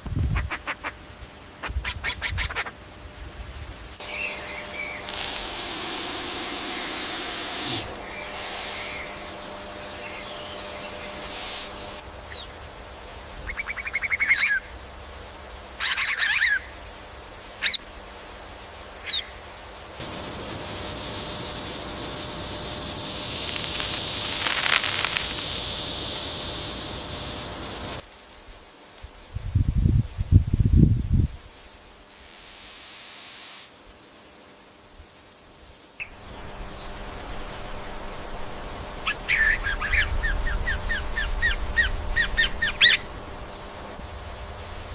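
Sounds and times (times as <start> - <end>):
steady high-pitched hiss: 0.0 - 44.9
bird chirping and buzzing: 4.0 - 12.6, 20.0 - 28.0, 36.0 - 44.1.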